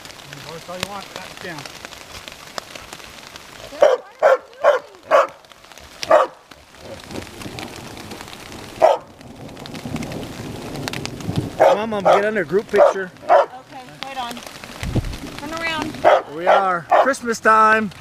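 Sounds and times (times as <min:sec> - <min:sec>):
hail and rain falling: 0:00.0 - 0:18.0
dog barking: 0:03.7 - 0:05.4, 0:06.0 - 0:06.4, 0:08.8 - 0:09.1, 0:11.6 - 0:13.6, 0:16.0 - 0:17.2.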